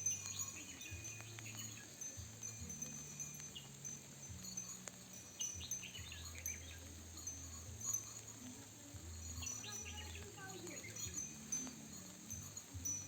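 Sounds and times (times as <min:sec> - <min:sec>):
bird chirps: 0:00.0 - 0:13.0
faint hiss: 0:00.0 - 0:13.0
soft chime-like tones: 0:00.0 - 0:13.0.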